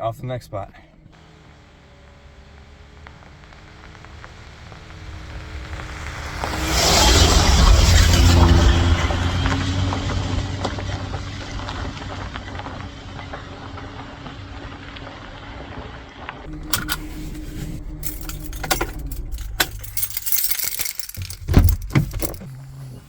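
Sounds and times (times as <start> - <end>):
van engine humming on road: 0.8 - 23.0
keys jangling: 16.5 - 22.5.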